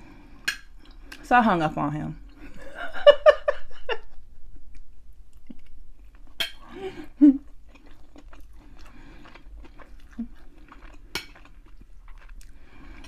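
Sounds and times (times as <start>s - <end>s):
person chewing food: 0.0s - 1.2s, 4.6s - 13.0s.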